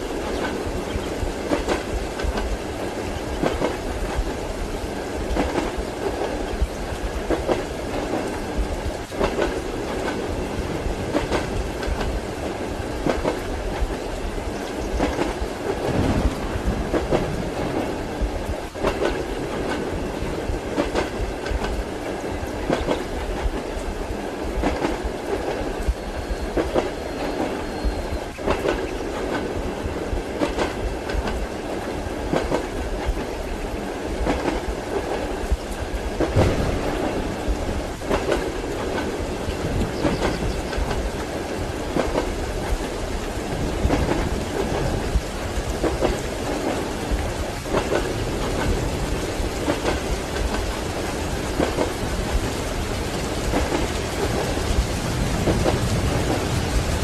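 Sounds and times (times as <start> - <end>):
railway carriage rumble: 0.0 - 57.0
train wheels clacking: 0.0 - 57.0.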